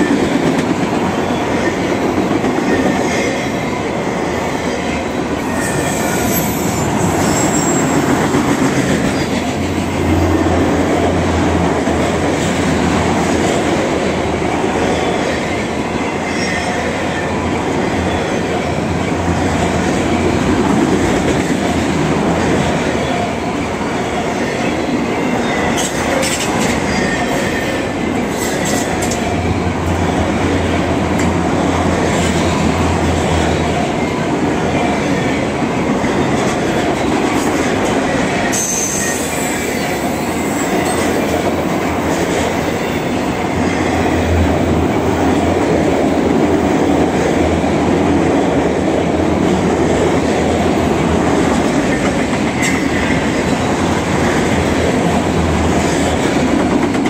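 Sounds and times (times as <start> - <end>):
rail clicks: 0.0 - 3.5, 5.4 - 57.0
steel wheels rumbling on rail: 0.0 - 57.0
faint wheel squeal: 5.6 - 8.1.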